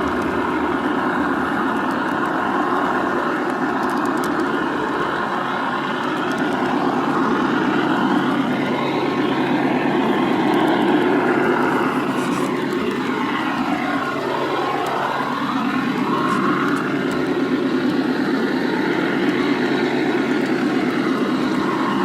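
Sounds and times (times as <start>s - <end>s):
gliding tones: 0.0s - 3.3s
diesel locomotive engine sound: 0.0s - 22.0s.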